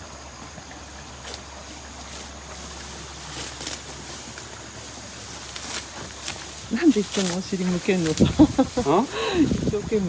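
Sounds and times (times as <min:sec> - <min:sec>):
engine humming low: 0:00.0 - 0:10.0
rice stalks swishing as cut: 0:02.1 - 0:09.1.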